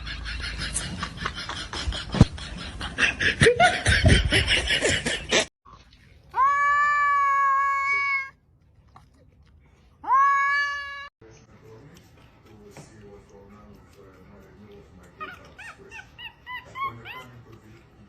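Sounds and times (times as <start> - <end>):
laughter: 0.0 - 5.5.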